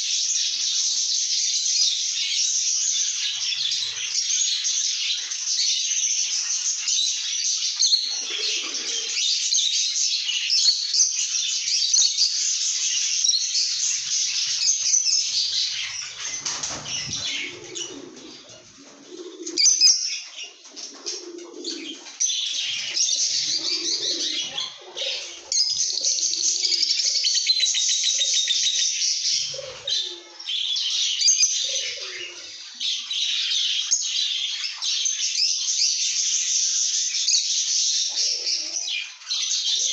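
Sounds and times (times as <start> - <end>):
softer lower bird sounds: 0.0 - 39.9
lovebirds chattering: 8.0 - 9.3, 13.5 - 33.0, 38.0 - 39.9.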